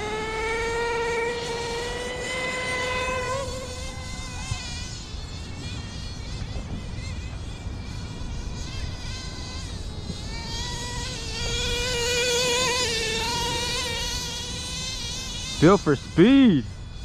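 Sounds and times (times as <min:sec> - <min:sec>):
small engine high buzz: 0:00.0 - 0:17.0.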